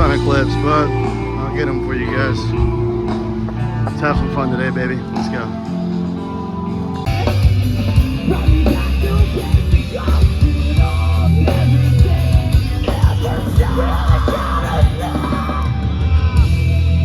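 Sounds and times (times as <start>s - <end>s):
heavy band playing live: 0.0s - 17.0s
yelled vocal: 7.1s - 16.7s
pounding drums: 7.1s - 16.8s.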